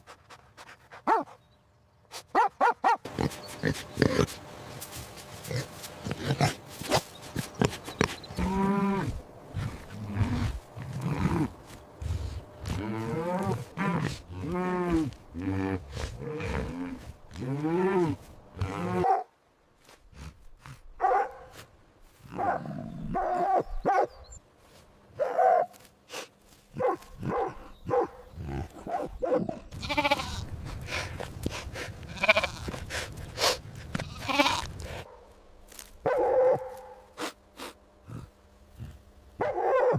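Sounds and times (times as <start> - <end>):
harsh animal cries: 29.7 - 30.4, 32.1 - 32.8, 34.0 - 34.7
sheep bleating: 29.7 - 30.5, 32.1 - 32.8, 34.0 - 34.8.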